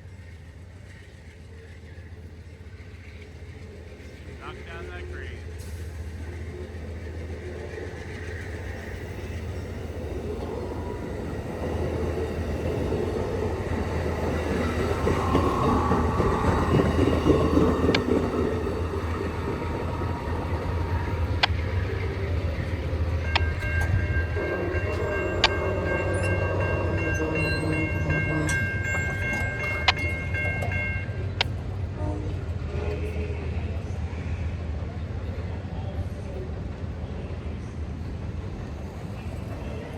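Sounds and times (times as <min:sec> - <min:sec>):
diesel locomotive rumbling: 0:00.0 - 0:39.9
train wheels clicking: 0:00.1 - 0:31.9
train horn chord: 0:24.2 - 0:28.9, 0:31.8 - 0:33.4.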